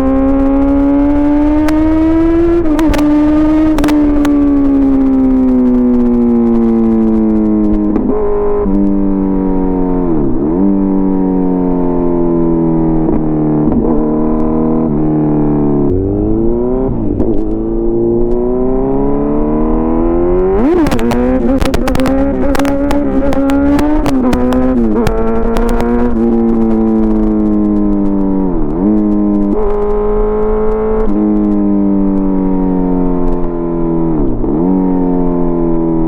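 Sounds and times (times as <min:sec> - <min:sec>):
motorcycle engine revving: 0:00.0 - 0:36.0
exhaust cracks: 0:02.6 - 0:08.1, 0:20.6 - 0:29.9.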